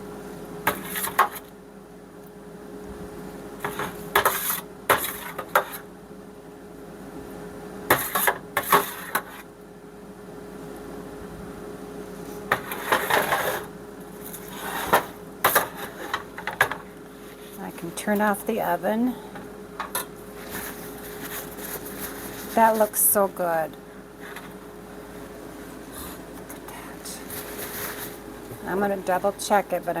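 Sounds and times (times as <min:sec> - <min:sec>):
utensil scraping baking dish: 0:12.5 - 0:13.7, 0:14.4 - 0:16.2.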